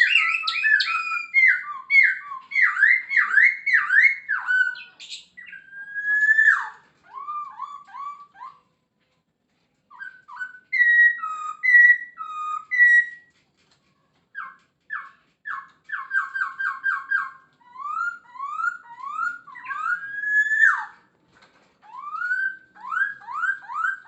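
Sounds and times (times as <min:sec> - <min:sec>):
bird singing clear whistles: 0:00.0 - 0:08.6, 0:09.9 - 0:13.3, 0:14.4 - 0:21.0.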